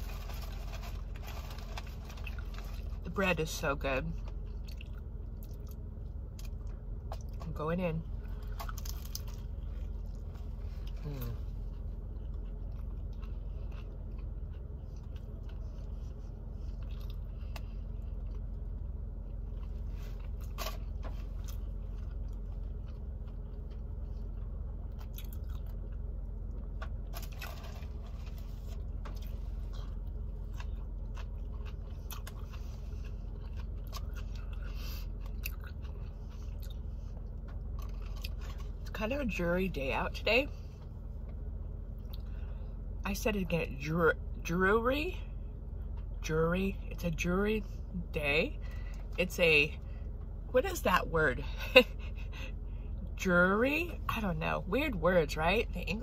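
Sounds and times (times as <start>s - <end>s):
steady low hum: 0.0s - 56.0s
person chewing sandwich: 4.2s - 7.4s, 8.1s - 38.9s.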